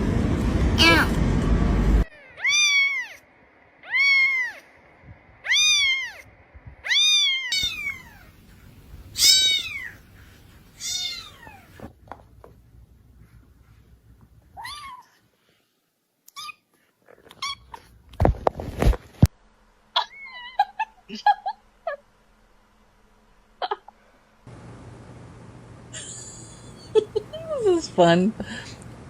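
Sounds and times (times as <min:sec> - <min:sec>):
loud rush of noise: 0:00.0 - 0:02.0
cat meowing: 0:02.1 - 0:03.2, 0:03.8 - 0:04.7, 0:05.4 - 0:08.3, 0:09.2 - 0:10.0, 0:10.8 - 0:11.8, 0:14.6 - 0:15.2.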